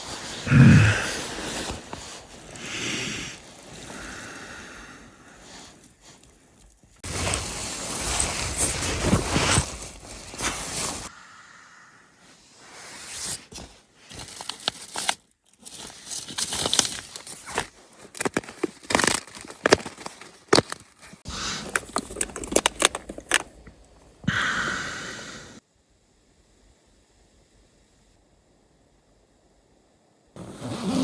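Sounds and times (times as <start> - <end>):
crinkly material rustling: 5.4 - 11.1, 12.7 - 24.0.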